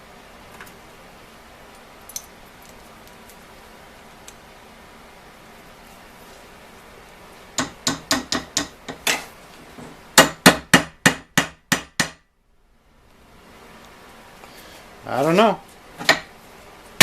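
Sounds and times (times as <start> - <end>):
hammer striking metal: 7.6 - 9.2.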